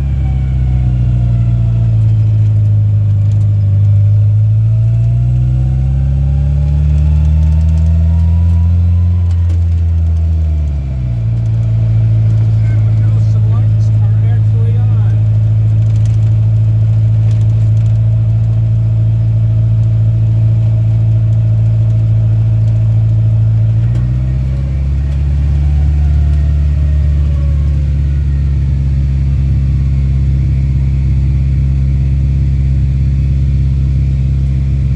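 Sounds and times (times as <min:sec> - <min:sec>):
truck engine running while driving: 0:00.0 - 0:34.9.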